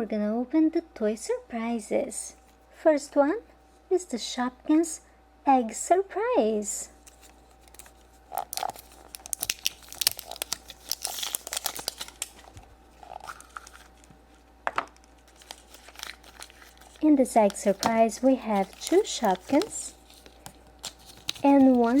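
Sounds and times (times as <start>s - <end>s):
wrapper crackling torn open: 7.0s - 14.2s, 14.8s - 22.0s
wrapper snap: 7.0s - 14.2s, 14.8s - 22.0s.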